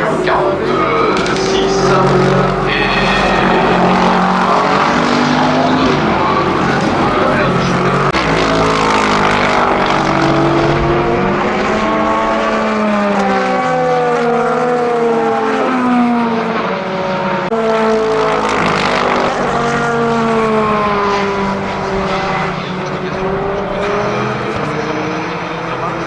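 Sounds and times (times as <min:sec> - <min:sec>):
racing engine running hard: 0:00.0 - 0:26.0.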